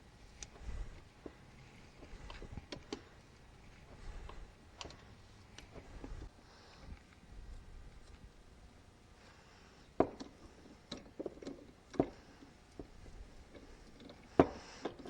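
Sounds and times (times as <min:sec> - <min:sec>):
hand tools clicking: 0:04.2 - 0:06.1.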